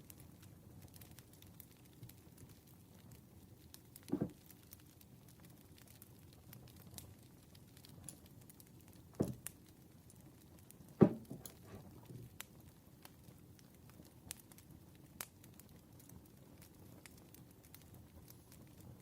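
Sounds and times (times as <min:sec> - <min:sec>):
campfire crackling: 0:00.0 - 0:19.0
wood popping: 0:04.0 - 0:04.5, 0:09.1 - 0:09.6, 0:11.0 - 0:12.4.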